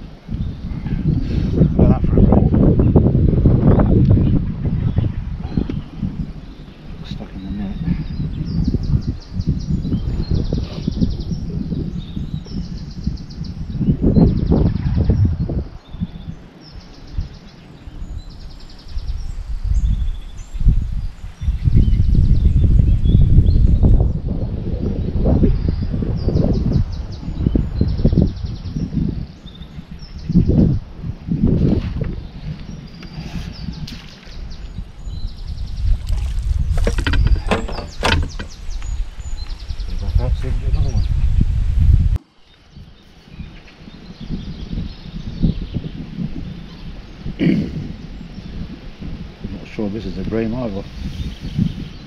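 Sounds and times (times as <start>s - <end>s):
wind buffeting microphone: 0.0s - 52.0s
sharp knocks: 36.7s - 38.6s.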